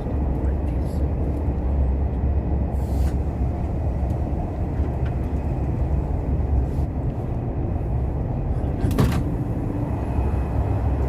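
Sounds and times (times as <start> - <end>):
train rumble inside passenger car: 0.0 - 11.0.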